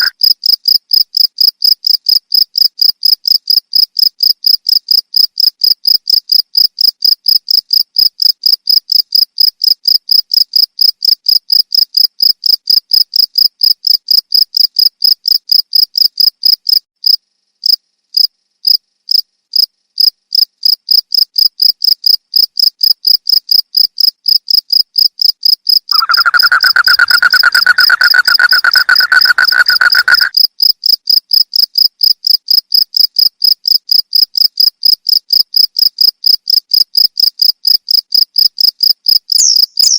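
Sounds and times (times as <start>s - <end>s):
low steady insect trill: 0.0s - 39.9s
crickets chirping: 25.0s - 31.2s, 37.4s - 39.9s.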